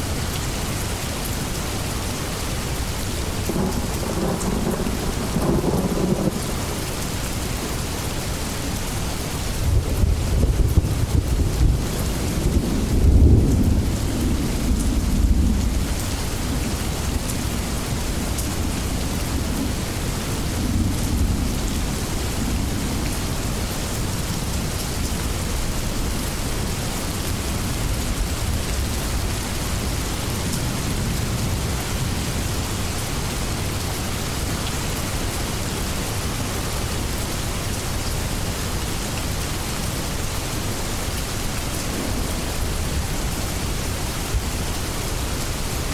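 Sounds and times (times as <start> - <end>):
heavy rain: 0.0 - 45.9
rolling thunder: 3.4 - 8.7, 9.4 - 23.5.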